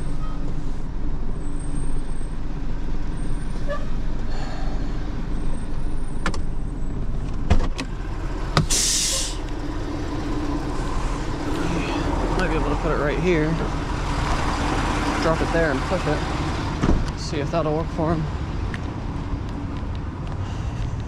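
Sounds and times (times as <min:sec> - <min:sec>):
truck engine idling: 0:00.0 - 0:19.5
short hiss: 0:08.7 - 0:09.4.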